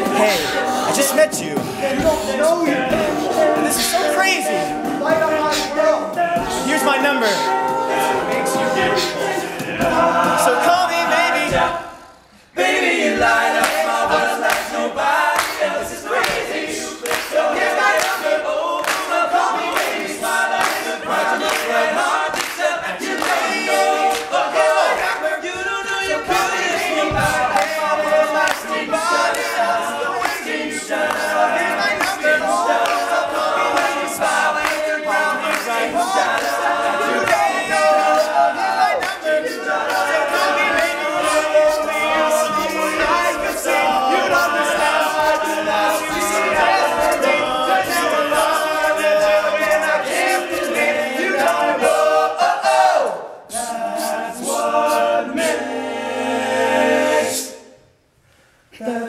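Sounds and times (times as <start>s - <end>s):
men singing a cappella: 0.0s - 57.7s, 58.7s - 59.0s.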